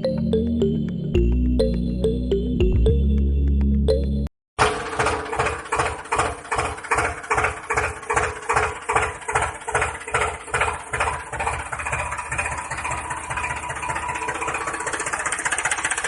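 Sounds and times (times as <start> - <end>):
small tractor engine chugging: 4.6 - 16.0.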